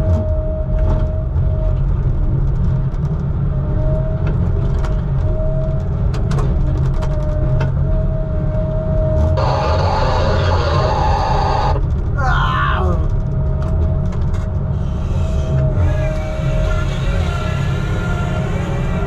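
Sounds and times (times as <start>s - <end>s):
light rattles and clicks: 4.2s - 7.8s, 13.1s - 14.7s
high whine: 9.4s - 13.1s
heavy diesel engine rumbling: 9.4s - 13.3s, 14.6s - 19.0s.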